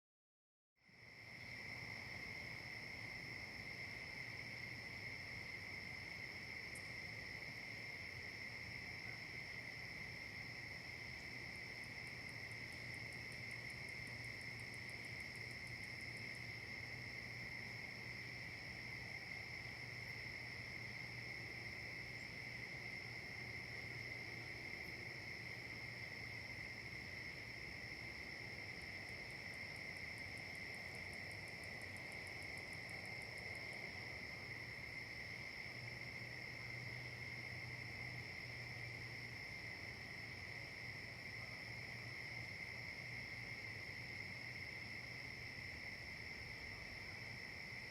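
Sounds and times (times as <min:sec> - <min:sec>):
crickets trilling: 0:00.9 - 0:47.9
high ticking insect chirp: 0:00.9 - 0:47.9.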